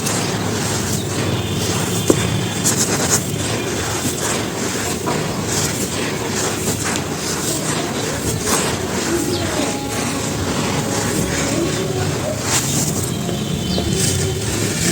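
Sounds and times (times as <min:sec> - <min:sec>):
charcoal ash crunching: 0:00.0 - 0:09.6.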